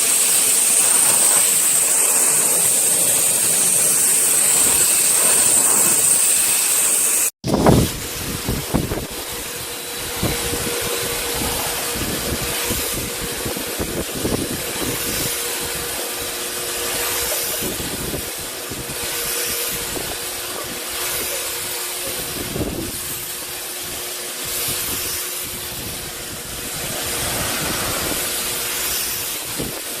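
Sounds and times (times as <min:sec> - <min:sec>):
water spray hiss: 0:00.0 - 0:07.3, 0:08.2 - 0:30.0
pressure washer motor humming: 0:00.0 - 0:30.0
wind gusting on microphone: 0:07.4 - 0:20.8, 0:22.3 - 0:30.0.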